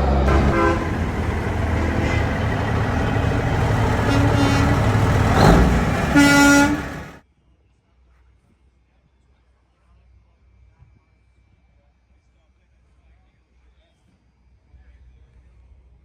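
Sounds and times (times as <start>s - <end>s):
diesel truck engine rumbling: 0.0s - 7.2s
truck air horn: 0.0s - 7.2s.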